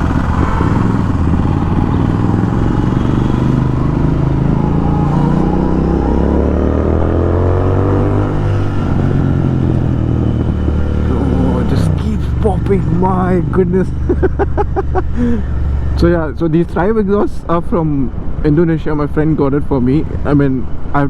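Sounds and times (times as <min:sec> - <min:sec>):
motorcycle engine running loud: 0:00.0 - 0:16.1.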